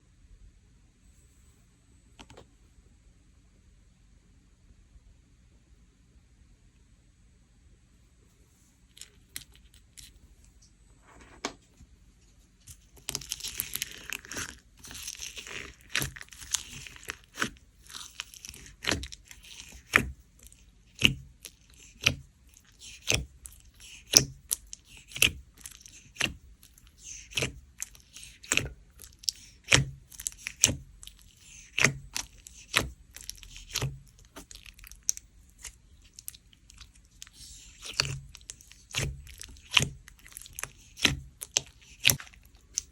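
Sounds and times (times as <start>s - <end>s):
slime squishing and crackling: 12.4s - 42.9s
beads popping: 12.7s - 42.9s.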